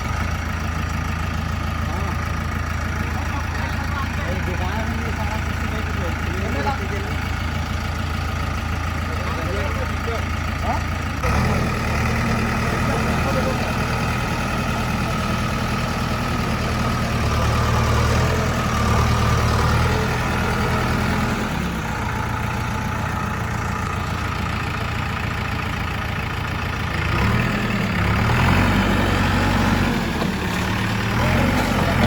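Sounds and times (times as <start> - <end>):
heavy diesel engine idling: 0.0 - 32.0.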